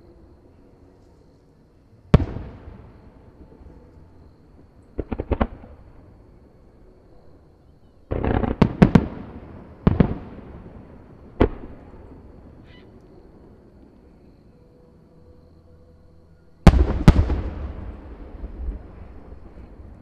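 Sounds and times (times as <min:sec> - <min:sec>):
fireworks bursting: 0:16.7 - 0:19.7.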